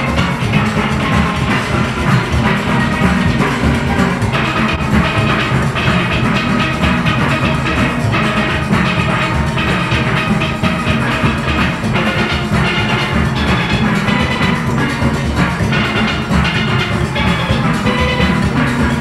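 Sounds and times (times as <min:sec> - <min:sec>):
drum kit and percussion beat: 0:00.0 - 0:19.0
steelpans ringing: 0:00.0 - 0:19.0.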